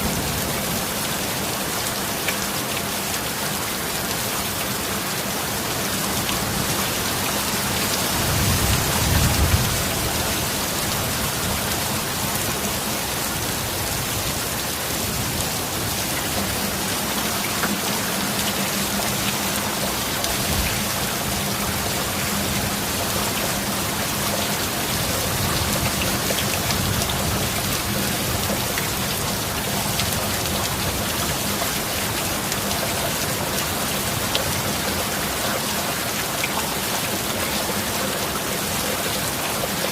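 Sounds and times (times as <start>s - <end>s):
heavy rain: 0.0s - 39.9s
thunder rumbling: 8.1s - 11.8s.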